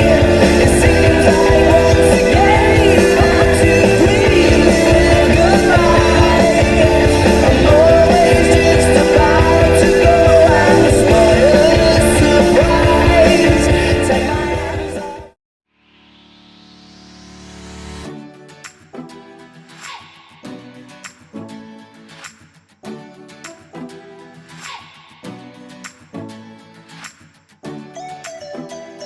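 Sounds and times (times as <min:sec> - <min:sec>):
rock music with sung vocal: 0:00.0 - 0:15.4.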